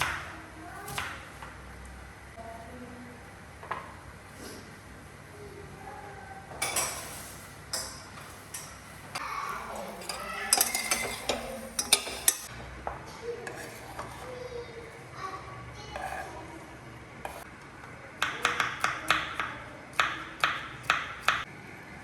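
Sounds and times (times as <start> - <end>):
dishes and cutlery clinking: 6.6 - 8.9, 9.6 - 12.5.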